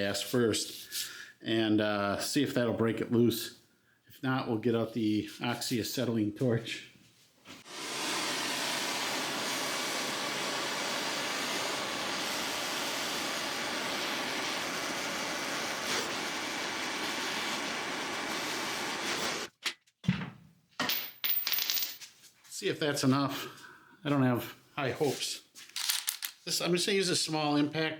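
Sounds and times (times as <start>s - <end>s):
gas torch hissing: 7.6s - 19.5s.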